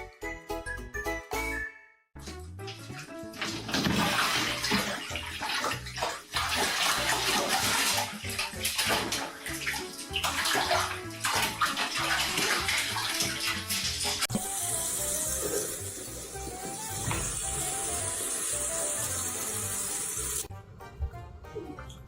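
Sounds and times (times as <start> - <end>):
water splashing and running: 2.2 - 20.5.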